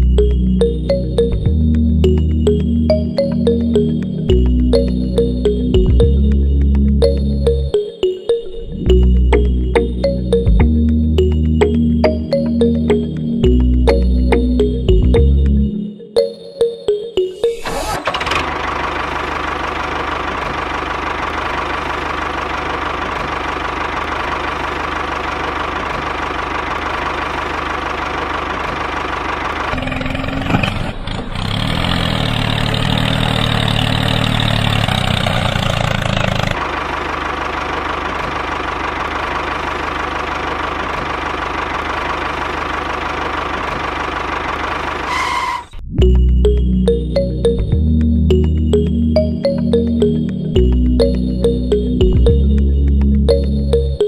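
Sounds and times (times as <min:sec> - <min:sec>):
small engine running: 0:17.6 - 0:45.7.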